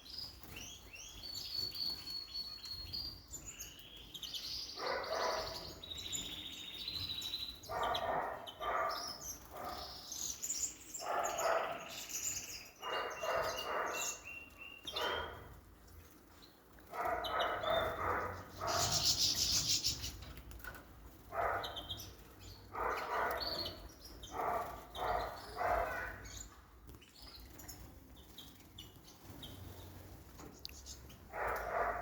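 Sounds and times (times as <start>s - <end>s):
high bird chirping: 0.4s - 15.4s, 17.0s - 20.3s, 21.4s - 26.6s.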